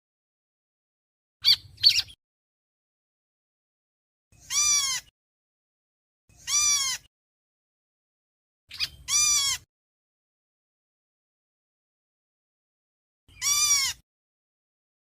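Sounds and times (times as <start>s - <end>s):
bird calls rising and falling: 1.4s - 2.2s, 8.7s - 9.7s.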